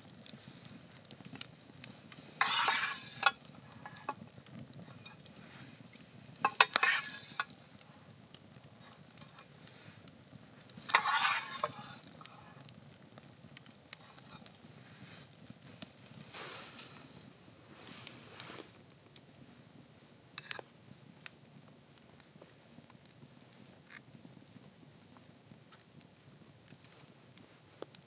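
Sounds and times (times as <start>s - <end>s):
campfire crackles: 0.0s - 28.0s
food sizzling in a pan: 1.9s - 4.2s, 4.8s - 8.0s, 8.8s - 10.0s, 10.7s - 12.7s, 16.2s - 18.8s, 20.4s - 20.6s
utensil scraping a pan: 2.1s - 8.2s, 8.8s - 9.6s, 10.8s - 12.7s, 13.9s - 14.5s, 16.2s - 17.2s.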